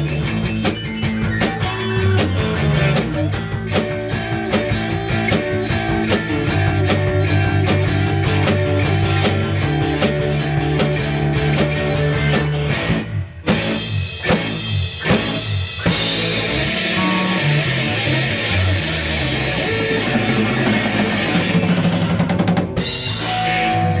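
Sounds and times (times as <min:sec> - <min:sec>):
rock band playing: 0:00.0 - 0:24.0
fast drum roll: 0:13.5 - 0:23.7.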